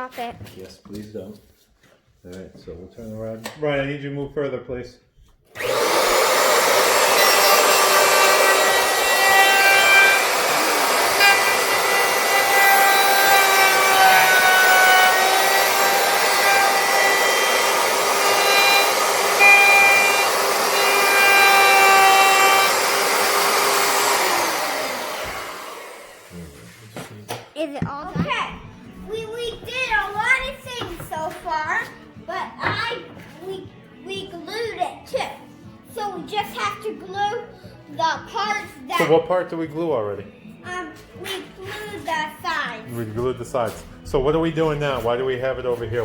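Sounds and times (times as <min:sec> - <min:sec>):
wood router cutting wood: 0:05.5 - 0:26.5.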